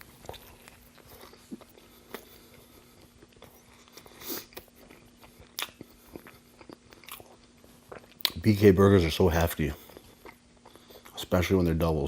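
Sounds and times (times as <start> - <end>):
close chewing mouth smacks: 0.0 - 8.4.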